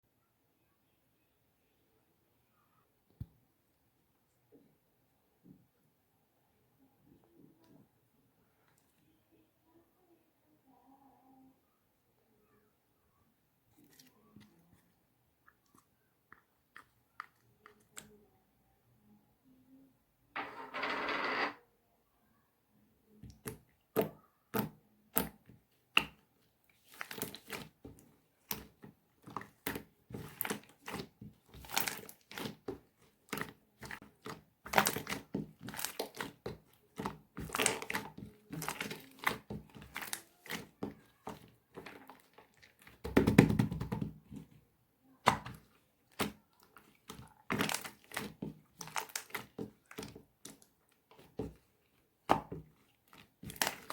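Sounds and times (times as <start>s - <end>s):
slime squelching and popping: 23.2s - 53.9s.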